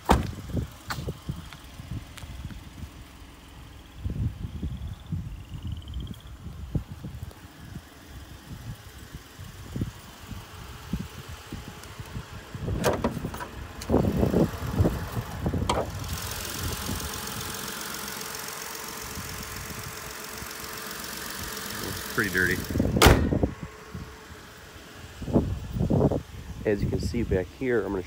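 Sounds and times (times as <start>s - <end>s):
car hood latch clunks: 0.0s - 0.4s, 12.8s - 13.9s, 15.6s - 15.9s, 22.9s - 23.5s
car engine idling: 0.0s - 28.0s.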